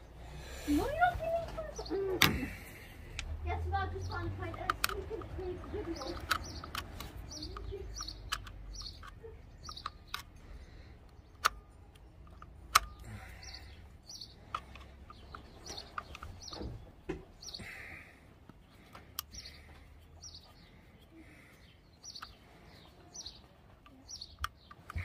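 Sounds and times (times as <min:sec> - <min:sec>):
bird chirping: 0:00.0 - 0:25.0
sharp clicks and knocks: 0:01.3 - 0:17.6, 0:23.2 - 0:25.0.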